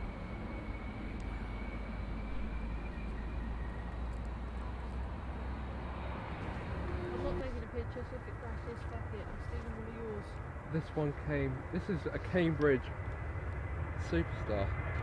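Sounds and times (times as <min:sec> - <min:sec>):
high engine whine: 0:00.0 - 0:15.0
jet engines running: 0:00.0 - 0:15.0.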